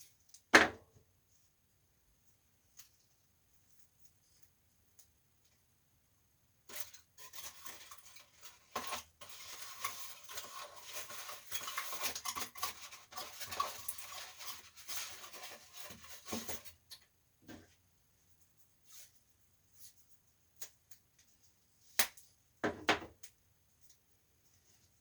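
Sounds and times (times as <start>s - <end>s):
hands rubbing and scraping casing: 6.8s - 16.7s.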